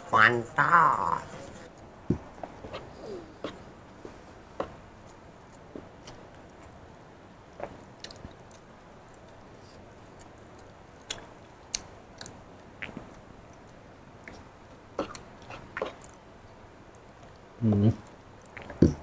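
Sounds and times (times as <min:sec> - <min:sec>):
person chewing food: 0:01.7 - 0:19.0
mouth clicks and smacks: 0:07.5 - 0:09.4, 0:10.0 - 0:16.2, 0:17.2 - 0:19.0.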